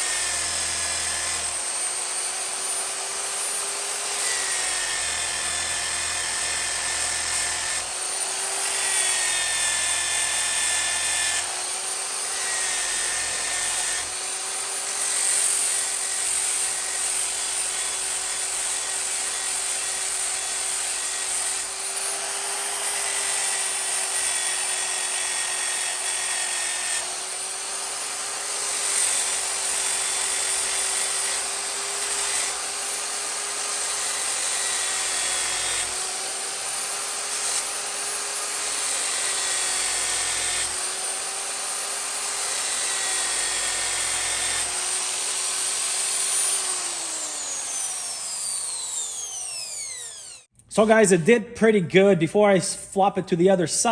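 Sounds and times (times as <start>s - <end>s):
angle grinder motor whine: 0.0s - 50.5s.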